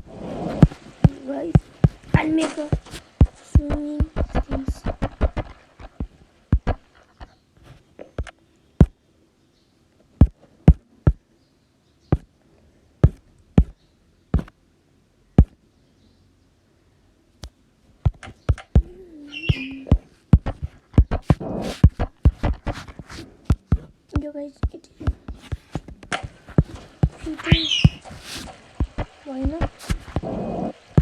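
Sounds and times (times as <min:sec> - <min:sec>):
sharp knocks and clicks: 0:00.0 - 0:07.4, 0:10.2 - 0:11.2, 0:13.0 - 0:13.8, 0:14.4 - 0:14.6, 0:15.4 - 0:15.6, 0:17.4 - 0:31.0.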